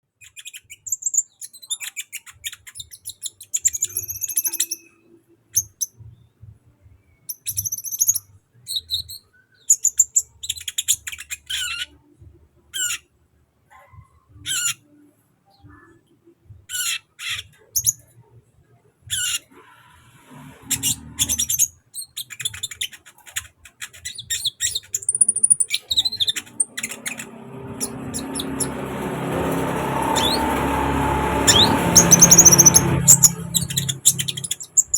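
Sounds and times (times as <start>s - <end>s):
bird chirping and twittering: 0.2s - 5.0s, 5.6s - 6.3s, 7.2s - 12.0s, 14.5s - 14.8s, 16.7s - 18.1s, 19.1s - 19.5s, 20.3s - 34.9s
rising noise: 26.5s - 34.7s.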